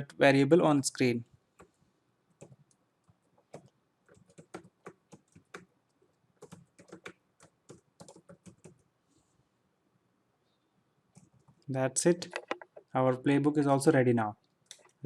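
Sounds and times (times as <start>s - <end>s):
faint keyboard typing: 1.6s - 8.9s, 11.1s - 13.2s, 14.4s - 15.0s.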